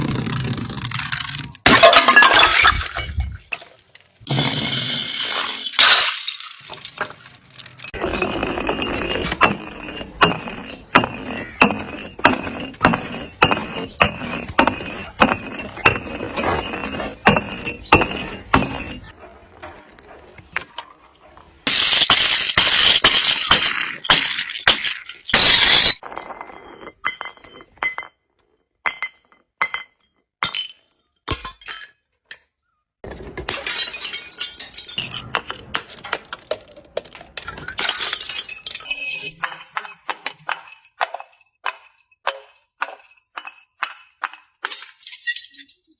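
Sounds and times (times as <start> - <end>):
glass bottles smashing: 1.7 - 19.1, 21.7 - 28.2, 28.9 - 32.0, 33.0 - 45.9
tinkling glass shards: 1.8 - 10.0, 21.7 - 26.0, 37.5 - 45.9.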